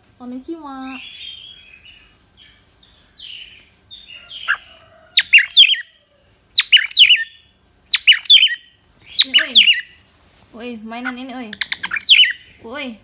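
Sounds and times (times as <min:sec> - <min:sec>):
cockatiel soft chirps: 0:01.0 - 0:05.9, 0:06.6 - 0:10.0, 0:11.5 - 0:12.5
cockatiel shrill whistled calls: 0:05.2 - 0:05.8, 0:06.6 - 0:07.4, 0:08.0 - 0:09.9, 0:11.6 - 0:12.4.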